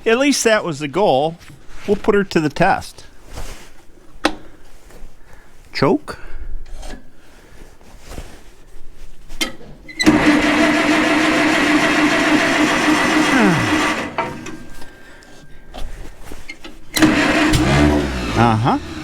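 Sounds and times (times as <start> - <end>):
tractor starter cranking engine: 9.9 - 14.8, 16.9 - 19.0.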